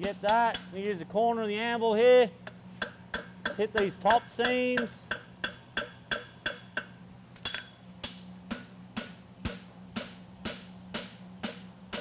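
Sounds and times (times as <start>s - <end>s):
hammer striking horseshoe on anvil: 0.0s - 0.9s, 2.4s - 12.0s
steady low hum: 0.0s - 12.0s.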